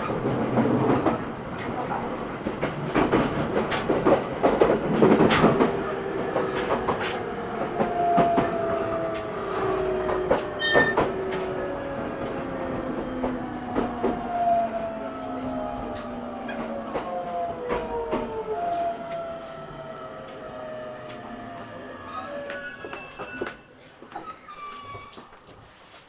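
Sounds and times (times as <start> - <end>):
train wheels clicking over rail joints: 0.4 - 14.9.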